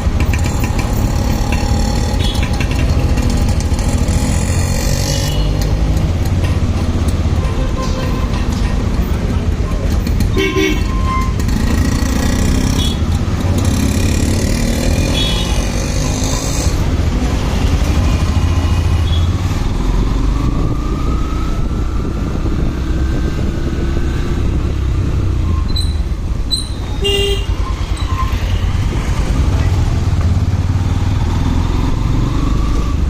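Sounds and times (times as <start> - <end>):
motorcycle engine: 0.0 - 33.0
wind rumble: 16.8 - 33.0.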